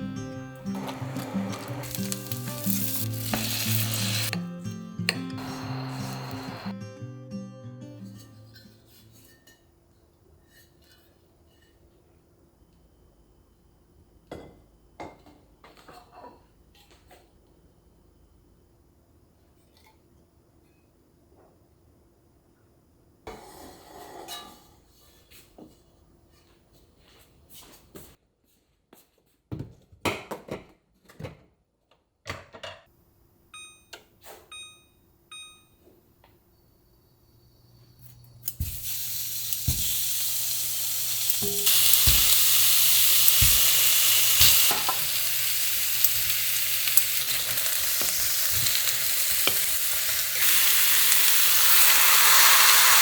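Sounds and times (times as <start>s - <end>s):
food sizzling in a pan: 0.2s - 4.4s, 5.3s - 6.7s, 38.4s - 53.0s.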